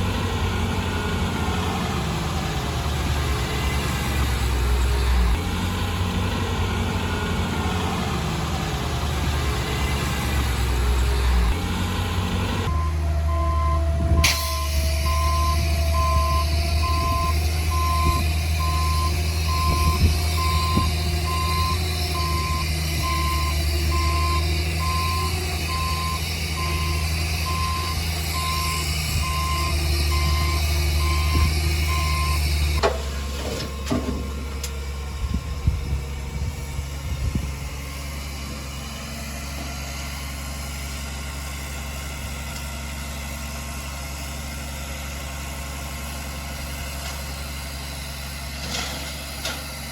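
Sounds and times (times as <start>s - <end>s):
heavy diesel machine engine: 0.0s - 49.9s
reversing alarm beeps: 12.7s - 32.4s.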